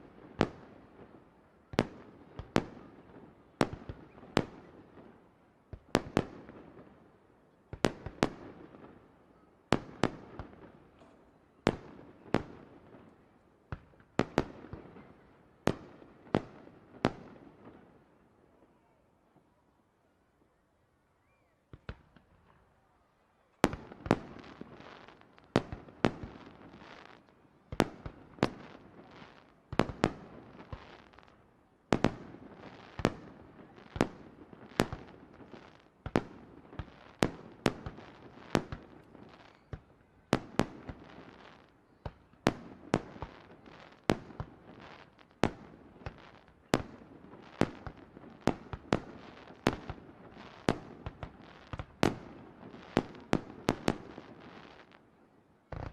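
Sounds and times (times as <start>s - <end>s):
fireworks bursting with bangs: 31.9s - 55.0s.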